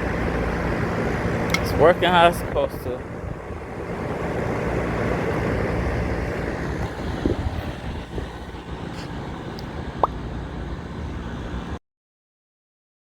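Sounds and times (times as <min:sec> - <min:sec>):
air conditioner fan rushing: 0:00.0 - 0:11.8.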